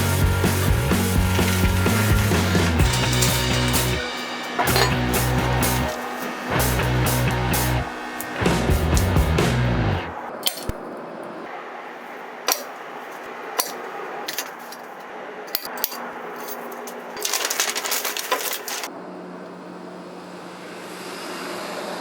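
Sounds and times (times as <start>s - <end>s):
metal parts clinking: 2.8s - 4.0s, 4.6s - 5.0s, 10.4s - 10.8s, 12.5s - 12.8s, 13.6s - 18.9s.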